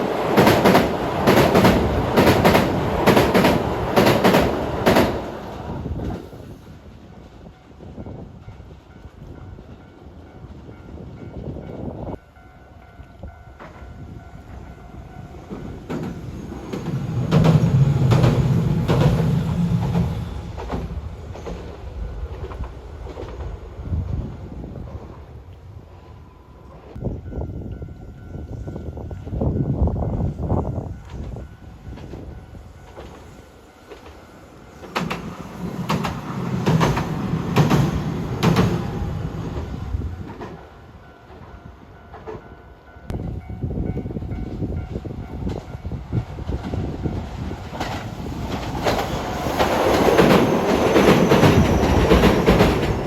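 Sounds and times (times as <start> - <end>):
train passing on rails: 0.0 - 53.0
wheels clicking over rail joints: 34.8 - 40.7, 46.4 - 53.0.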